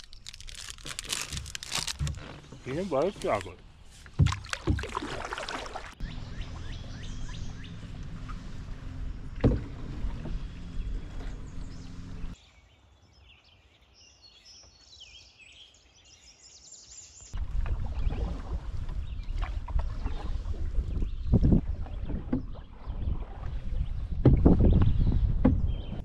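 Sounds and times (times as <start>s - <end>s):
low rumble of wind and water: 0.0s - 12.4s, 17.4s - 26.0s
canoe knock: 4.0s - 5.2s, 24.2s - 25.8s.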